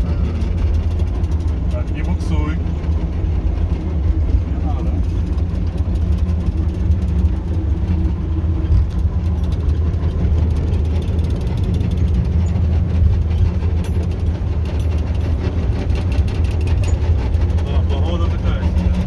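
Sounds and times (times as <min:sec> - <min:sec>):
diesel engine running: 0:00.0 - 0:19.0
rattling clicks from running gear: 0:04.8 - 0:19.0.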